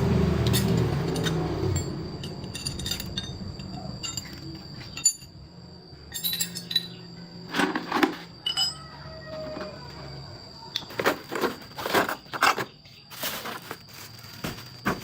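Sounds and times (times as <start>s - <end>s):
metallic clinks of tools: 0.4s - 5.4s, 6.1s - 7.0s, 7.6s - 8.9s.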